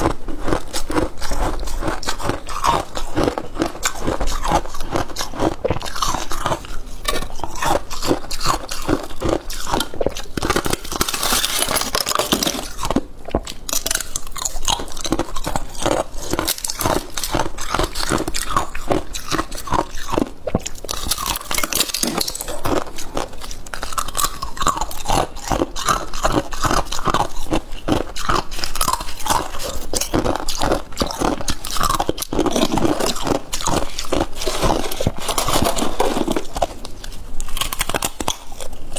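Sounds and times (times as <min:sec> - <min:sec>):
crisp crunching of chewed frost: 0:00.0 - 0:38.9.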